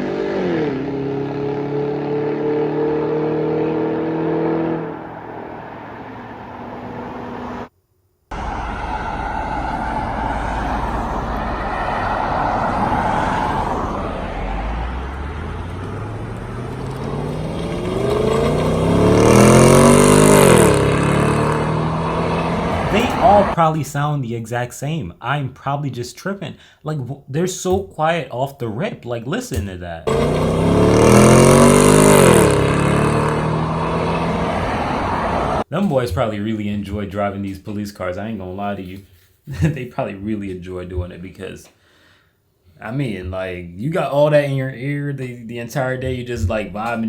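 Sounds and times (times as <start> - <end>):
car engine accelerating: 0.0 - 7.7, 8.3 - 23.6, 30.1 - 35.6.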